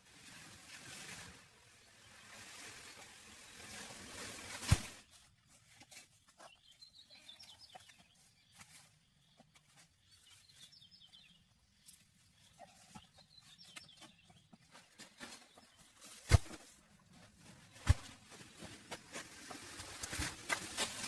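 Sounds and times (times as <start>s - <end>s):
faint bird chirps: 5.1s - 16.3s.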